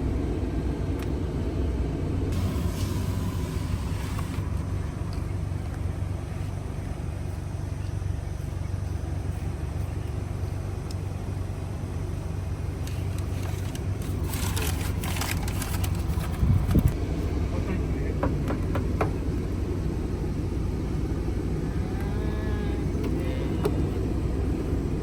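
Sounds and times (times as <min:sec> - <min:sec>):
car engine and tyres rumbling: 0:00.0 - 0:25.0
crackling noise: 0:11.9 - 0:17.0.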